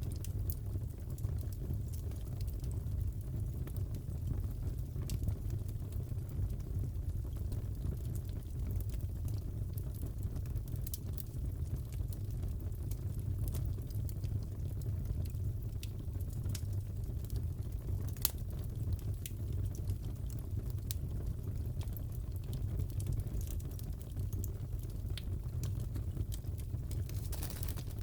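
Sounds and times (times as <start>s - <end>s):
low rumble of flames: 0.0s - 28.0s
wood fire crackling: 0.0s - 28.0s.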